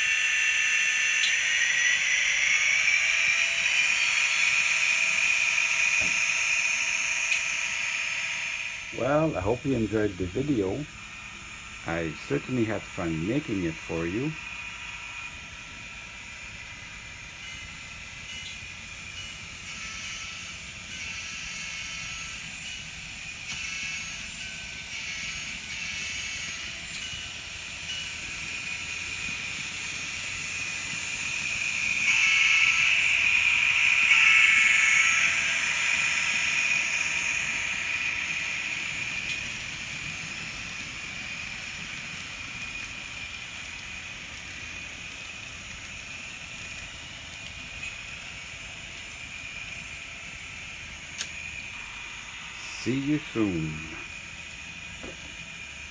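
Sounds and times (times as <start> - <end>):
diesel locomotive sounds from tiny speaker: 0.0 - 55.9.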